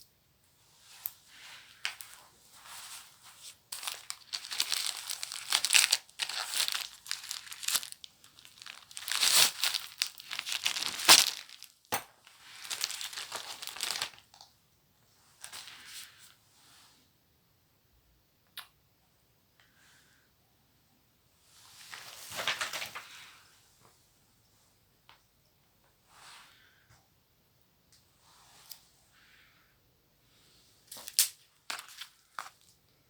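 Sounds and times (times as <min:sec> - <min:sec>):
paper packaging tearing and rustling: 0:03.7 - 0:11.8, 0:12.5 - 0:14.2.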